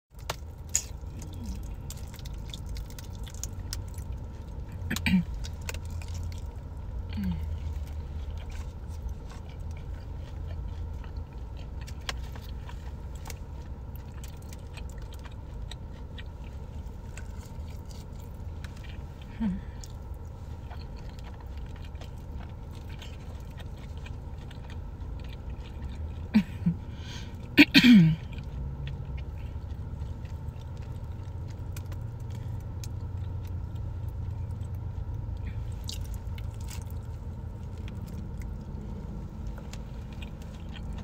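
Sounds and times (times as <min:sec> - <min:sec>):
chewing with wet mouth clicks: 0:00.1 - 0:26.7, 0:28.2 - 0:41.0
closed-mouth hums: 0:06.6 - 0:11.8.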